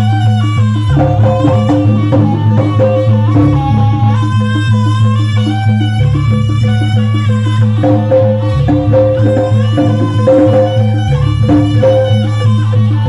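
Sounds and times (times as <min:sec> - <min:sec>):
drums striking a steady rhythm: 0:00.0 - 0:13.0
gamelan melodic line: 0:00.0 - 0:13.0
sustained low tone: 0:00.9 - 0:05.2, 0:07.7 - 0:13.0.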